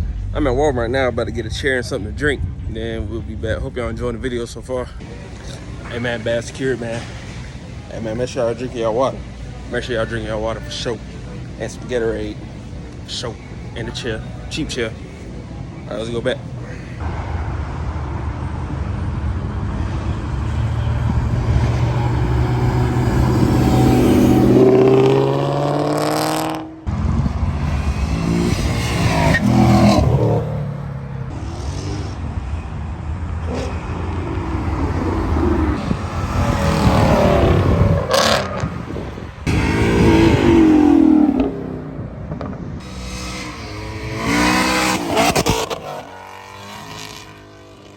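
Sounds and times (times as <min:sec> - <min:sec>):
car engines revving: 0:00.0 - 0:47.9.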